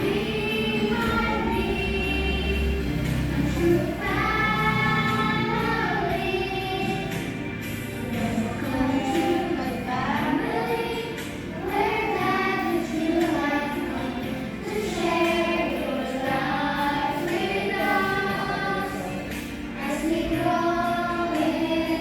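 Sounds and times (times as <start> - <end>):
background music: 0.0 - 22.0
group of voices singing: 0.0 - 22.0.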